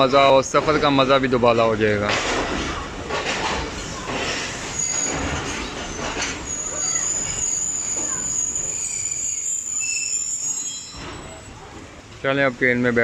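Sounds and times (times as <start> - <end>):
train wheels squealing: 4.3 - 11.6.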